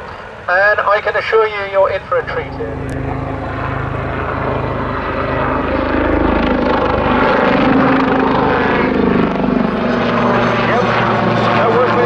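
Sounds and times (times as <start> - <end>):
helicopter turbines and rotors: 0.0 - 12.0.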